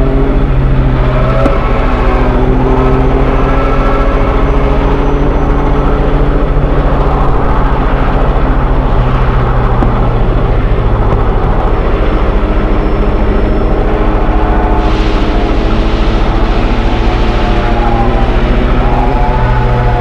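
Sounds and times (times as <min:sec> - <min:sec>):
train engine droning: 0:00.0 - 0:20.0.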